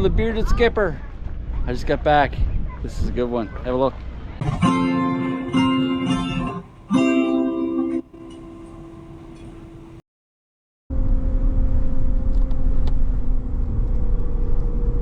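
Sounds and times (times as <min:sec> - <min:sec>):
acoustic guitar strummed chords: 0:04.4 - 0:10.0.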